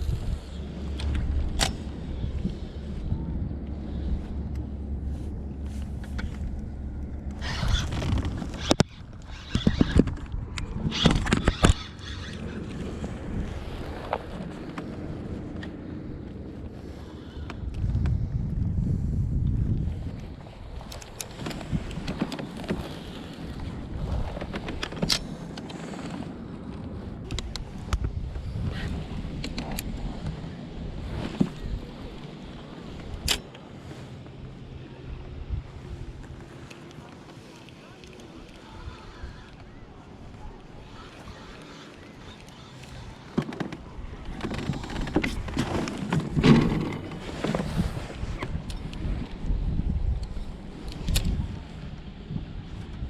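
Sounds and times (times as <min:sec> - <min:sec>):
wind rumbling on microphone: 0:00.0 - 0:53.0
clicks and knocks from boat: 0:20.8 - 0:28.1, 0:41.2 - 0:48.9.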